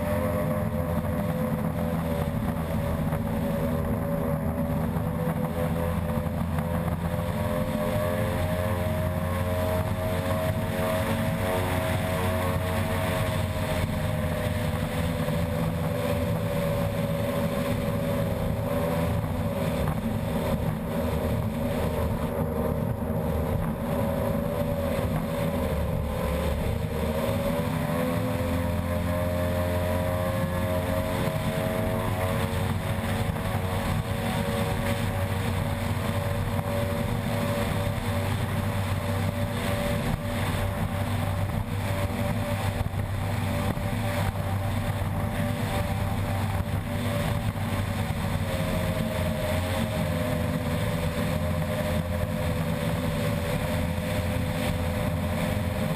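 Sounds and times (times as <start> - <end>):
boat engine running at speed: 0.0 - 55.9.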